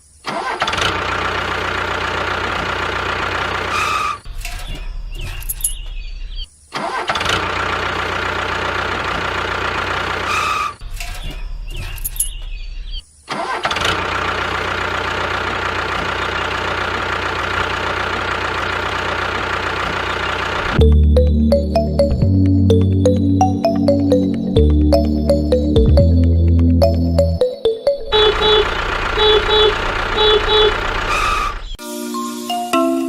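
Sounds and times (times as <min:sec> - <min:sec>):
small engine running: 0:13.8 - 0:20.8, 0:28.1 - 0:31.8.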